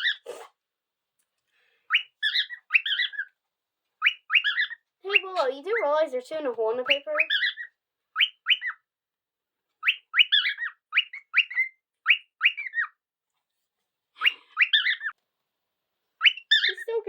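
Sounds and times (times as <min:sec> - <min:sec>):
cockatiel chirping: 0:00.0 - 0:00.3, 0:01.9 - 0:03.4, 0:04.0 - 0:05.8, 0:06.8 - 0:08.9, 0:09.8 - 0:13.0, 0:14.2 - 0:15.2, 0:16.2 - 0:17.0.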